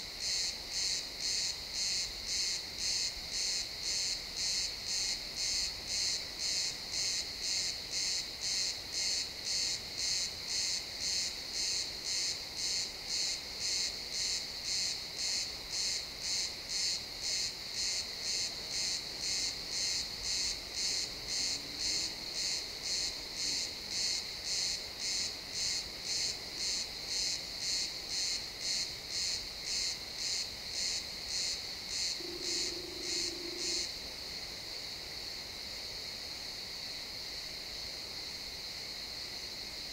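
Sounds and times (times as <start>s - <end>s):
crickets chirping: 0.0s - 39.9s
faint continuous trill: 31.9s - 34.2s.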